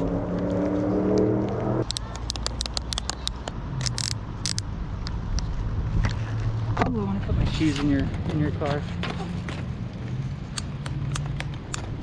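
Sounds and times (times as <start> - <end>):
car engine humming: 0.0 - 5.8.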